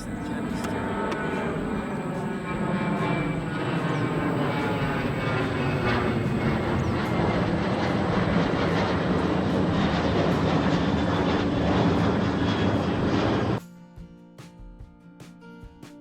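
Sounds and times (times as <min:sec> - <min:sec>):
jet aircraft flying overhead: 0:00.0 - 0:13.6.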